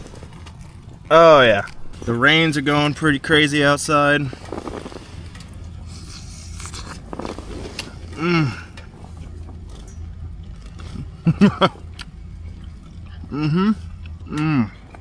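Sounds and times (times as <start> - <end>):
steady low hum: 0.0 - 15.0
man humming mmm: 8.1 - 8.8, 13.2 - 14.9.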